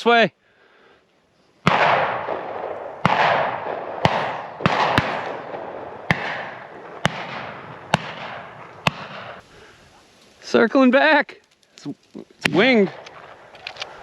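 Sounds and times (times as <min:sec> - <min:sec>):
shotgun shots with echo: 0:01.6 - 0:09.4.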